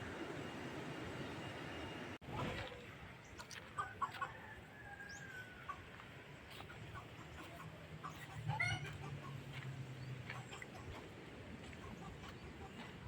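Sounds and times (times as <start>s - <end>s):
birds calling: 4.9s - 13.0s.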